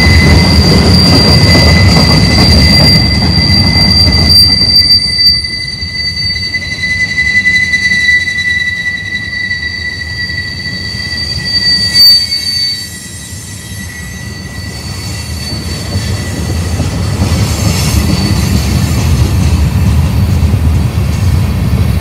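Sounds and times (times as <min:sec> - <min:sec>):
train cars rumbling past: 0:00.0 - 0:07.5, 0:12.8 - 0:22.0
train wheels squealing on rails: 0:00.0 - 0:22.0.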